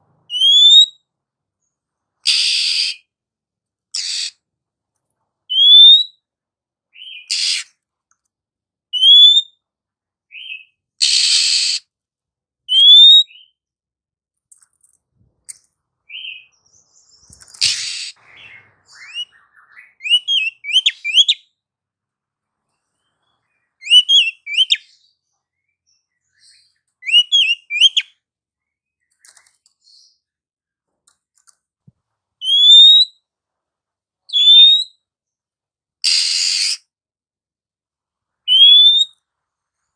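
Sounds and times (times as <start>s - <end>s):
harsh rasping bird notes: 3.9s - 4.4s, 17.4s - 21.3s
bird whistles sweeping upward: 38.5s - 39.1s.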